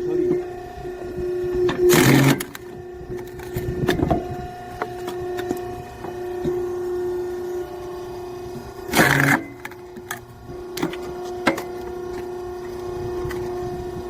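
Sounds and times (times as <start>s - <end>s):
electric motor and pump humming: 0.0s - 14.0s.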